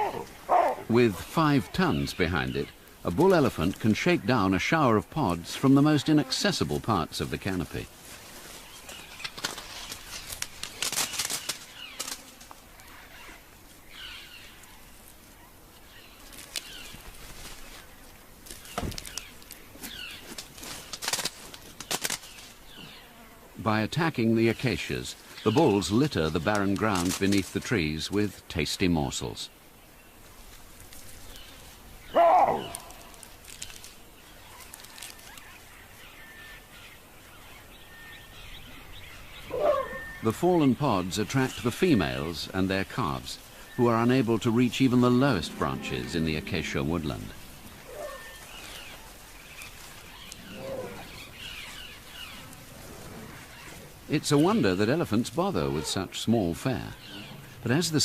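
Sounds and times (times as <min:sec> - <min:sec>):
leaves rustling: 0:00.0 - 0:58.0
faint snaps and crackles: 0:08.6 - 0:13.4, 0:14.6 - 0:22.6, 0:26.3 - 0:28.3, 0:32.6 - 0:35.7, 0:47.8 - 0:52.7
loud animal call: 0:32.1 - 0:33.2, 0:39.4 - 0:40.3, 0:50.2 - 0:54.0
seed pods rattling onto ground: 0:32.6 - 0:34.0.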